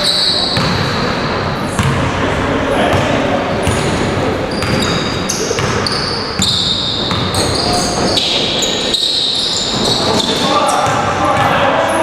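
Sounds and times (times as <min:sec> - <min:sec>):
court noise: 0:00.0 - 0:12.0
short high squeaks: 0:04.5 - 0:10.8.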